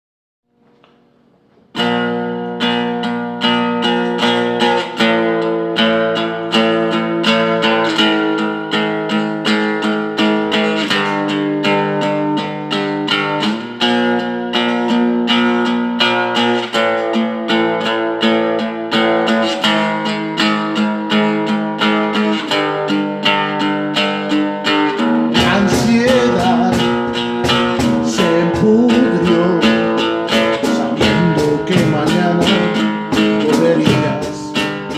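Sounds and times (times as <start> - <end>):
acoustic guitar strumming chords: 0.6 - 34.9
bass: 25.3 - 34.9.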